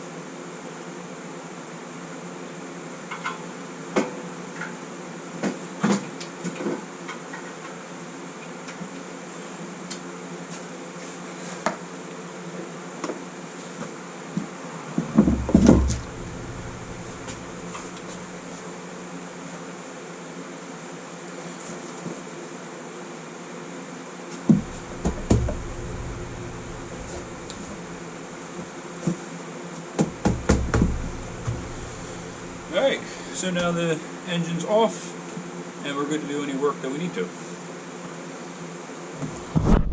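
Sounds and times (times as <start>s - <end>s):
fan hum: 15.0s - 19.5s, 24.5s - 34.9s
heavy engine thudding down: 15.2s - 18.4s, 24.5s - 28.0s, 30.0s - 33.3s.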